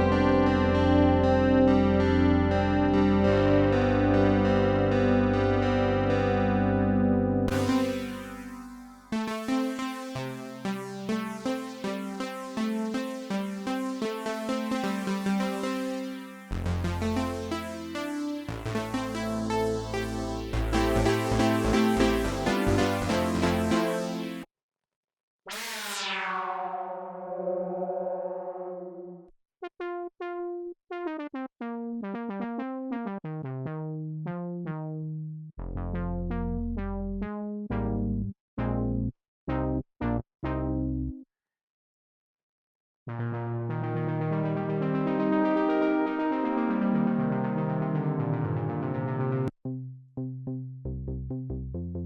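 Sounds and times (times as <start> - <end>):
deep synth bass: 0.0 - 9.5, 16.6 - 23.9, 33.5 - 41.2, 49.7 - 52.0
synthesizer sequence of short notes: 7.5 - 24.5, 25.5 - 29.2.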